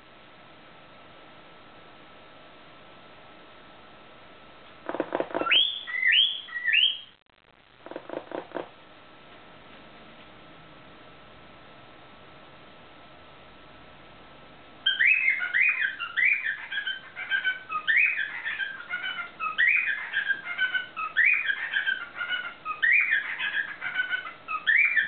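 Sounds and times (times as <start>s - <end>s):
cockatiel whistling song: 5.3s - 7.1s, 14.9s - 25.0s.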